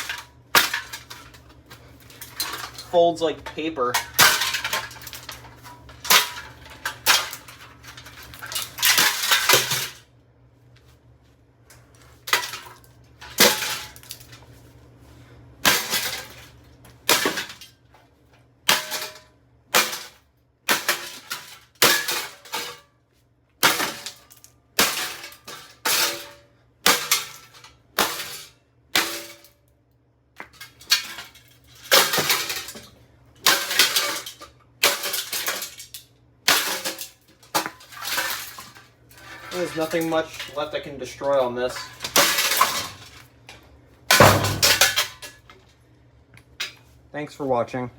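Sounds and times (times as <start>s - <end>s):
box fan being smashed: 0.0s - 10.0s, 12.2s - 14.5s, 15.6s - 17.9s, 18.6s - 22.9s, 23.6s - 29.6s, 30.4s - 43.4s, 44.1s - 45.6s.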